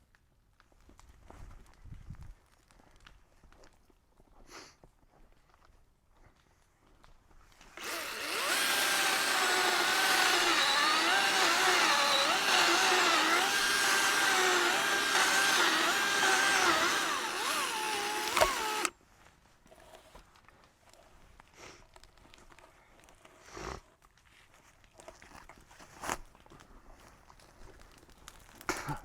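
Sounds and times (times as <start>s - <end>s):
chainsaw cutting wood: 7.8s - 18.9s.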